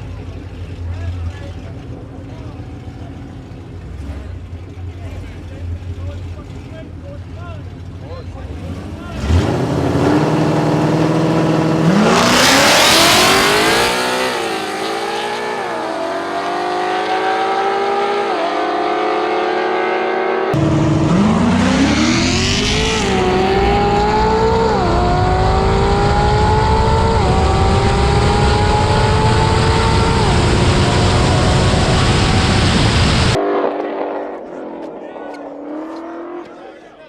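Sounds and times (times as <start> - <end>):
race car engine accelerating: 8.3 - 36.7.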